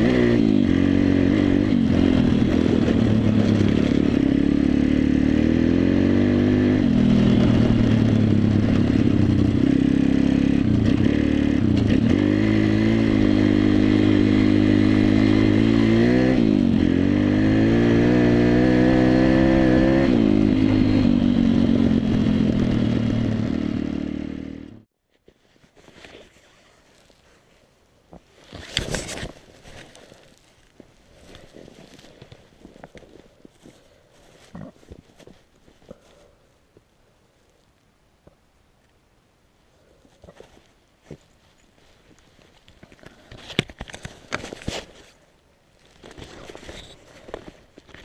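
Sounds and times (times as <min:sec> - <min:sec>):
motorcycle engine revving: 0:00.0 - 0:24.9.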